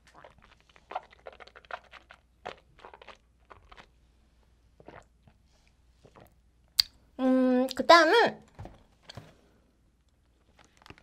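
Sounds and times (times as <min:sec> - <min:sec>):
crisp chewing crunches: 0:00.0 - 0:04.0.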